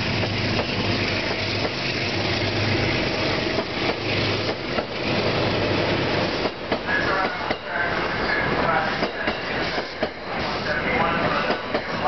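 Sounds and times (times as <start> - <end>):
train engine hum: 0.0 - 12.0
train wheel clicks: 3.5 - 5.0.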